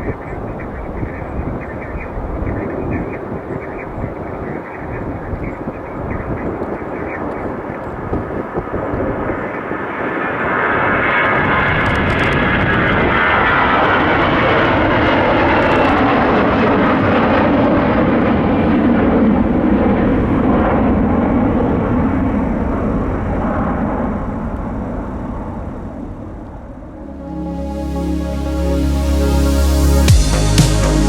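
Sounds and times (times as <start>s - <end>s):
high jet engine whine: 2.6s - 31.0s
jet engines roaring: 6.6s - 24.3s.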